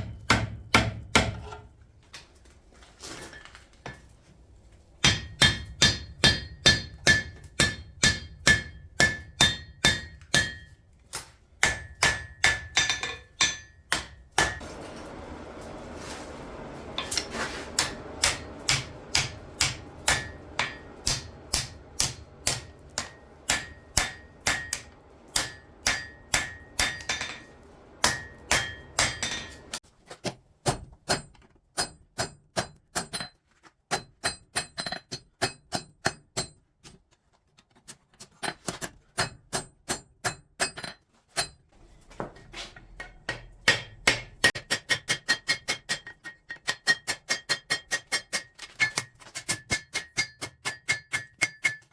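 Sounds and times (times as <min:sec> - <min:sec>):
hammer ringing on anvil: 0:05.0 - 0:10.8, 0:11.6 - 0:14.8, 0:17.0 - 0:29.8
low hum: 0:14.6 - 0:29.8.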